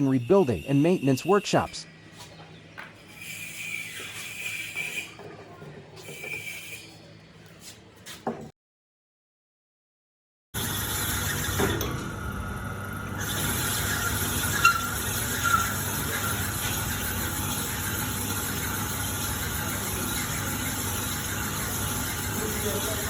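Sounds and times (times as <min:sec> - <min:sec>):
high squeal from cutting: 0:00.0 - 0:01.8, 0:03.0 - 0:05.2, 0:06.0 - 0:07.0, 0:13.2 - 0:16.6
sharp machine squeaks: 0:00.0 - 0:02.0, 0:03.0 - 0:05.2, 0:06.0 - 0:07.2, 0:13.2 - 0:23.0
boring machine hum: 0:10.6 - 0:23.0.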